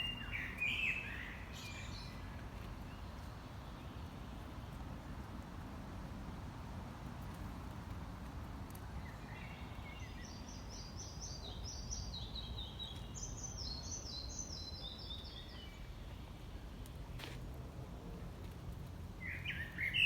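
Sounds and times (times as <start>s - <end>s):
songbirds chirping: 0.0s - 5.4s, 8.6s - 20.0s
low outdoor background noise: 0.0s - 20.0s.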